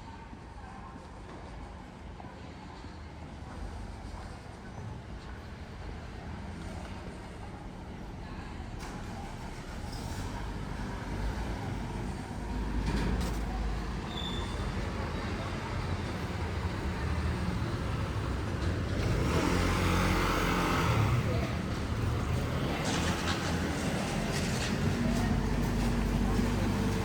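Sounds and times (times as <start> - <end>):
passing vehicles rumbling: 8.9 - 27.0.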